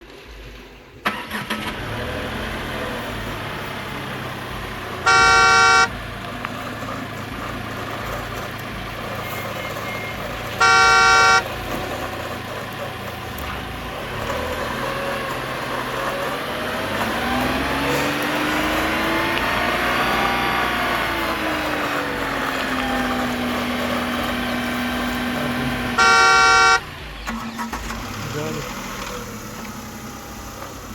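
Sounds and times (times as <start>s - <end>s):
toy car horn beeps: 5.0s - 6.0s, 9.5s - 11.6s, 26.0s - 27.9s.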